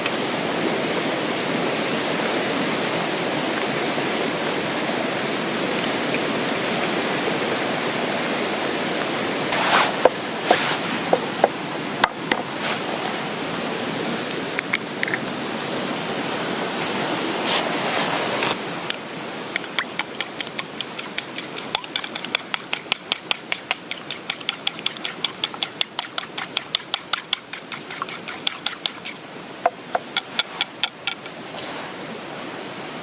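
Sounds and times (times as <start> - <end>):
rapid tapping of cooking utensil: 19.5 - 31.2.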